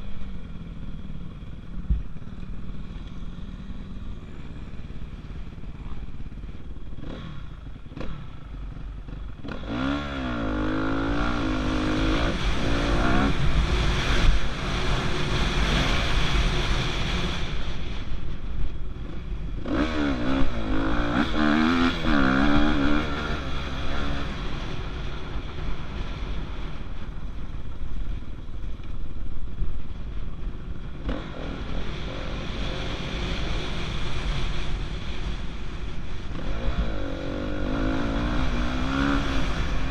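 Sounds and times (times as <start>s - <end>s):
dirt bike engine revving: 2.6s - 18.0s, 19.6s - 25.3s, 36.3s - 39.9s.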